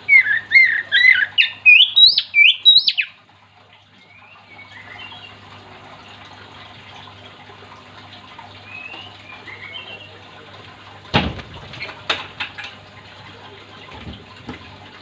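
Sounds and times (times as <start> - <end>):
faint bird chirps: 0.1 - 3.1
loud knocks: 11.1 - 12.4.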